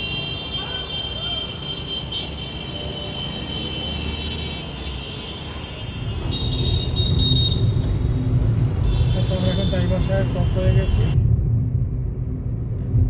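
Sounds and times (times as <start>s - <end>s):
vehicle rumble: 6.0s - 13.0s.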